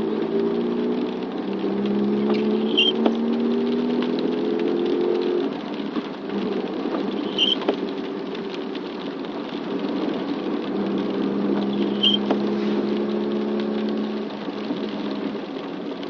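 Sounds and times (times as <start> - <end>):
road noise: 0.0 - 16.0
vehicle engine running: 0.0 - 16.0
short high chirps: 2.6 - 3.0, 7.2 - 7.6.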